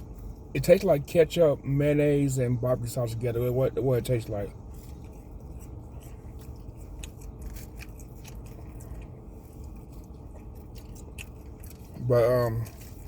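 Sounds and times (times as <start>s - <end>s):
low hum: 0.0s - 13.0s
person chewing food: 4.6s - 13.0s.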